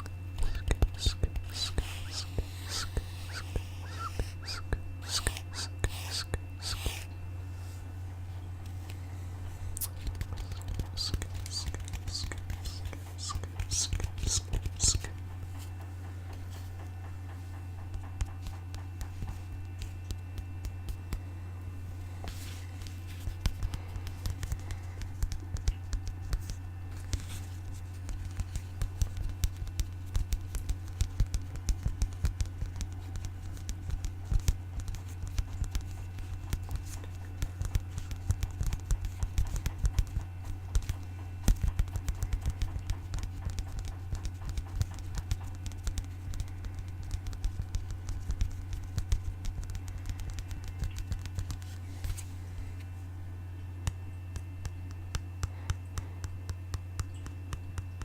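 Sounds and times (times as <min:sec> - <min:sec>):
steady low hum: 0:00.0 - 0:58.0
rapid tapping clicks: 0:28.1 - 0:51.6.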